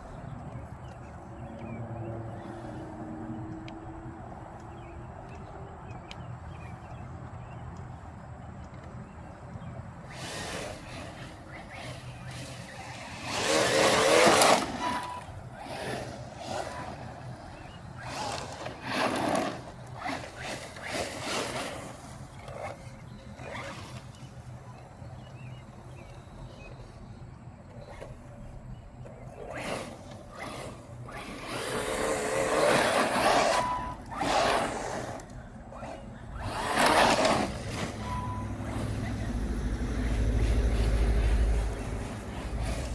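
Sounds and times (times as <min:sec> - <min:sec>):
tyres churning dirt: 0:08.7 - 0:42.9
electric motor whining: 0:10.0 - 0:24.6, 0:27.8 - 0:42.9.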